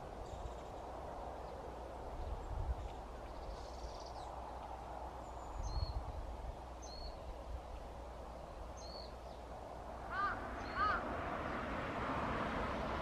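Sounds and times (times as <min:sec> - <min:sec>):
outdoor background noise: 0:00.0 - 0:13.0
small bird calling: 0:10.0 - 0:11.1.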